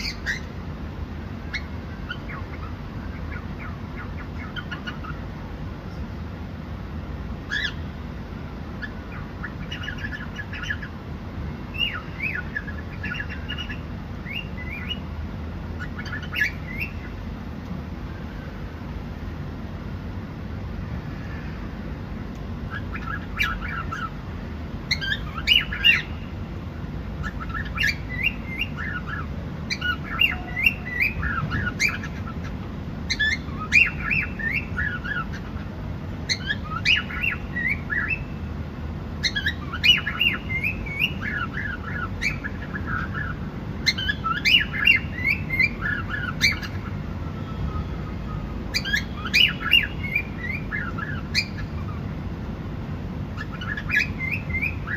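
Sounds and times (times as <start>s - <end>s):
cockatiel chirping and whistling: 0.0s - 0.5s, 1.5s - 5.2s, 7.5s - 7.8s, 8.8s - 10.9s, 11.7s - 15.0s, 15.8s - 17.1s, 22.7s - 24.1s, 24.9s - 26.2s, 27.2s - 32.3s, 33.1s - 35.6s, 36.3s - 38.3s, 39.2s - 46.9s, 47.7s - 52.0s, 53.4s - 54.9s
low background hum: 0.0s - 54.9s.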